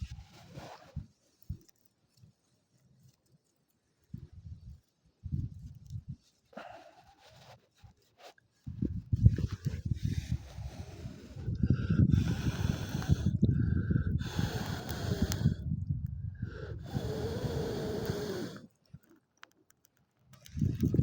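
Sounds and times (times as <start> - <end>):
air gusts buffeting microphone: 8.7 - 18.6, 20.5 - 21.0.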